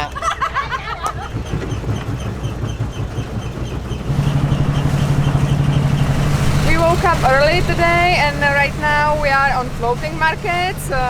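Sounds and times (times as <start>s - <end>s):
motorboat engine rumbling: 2.8s - 11.0s.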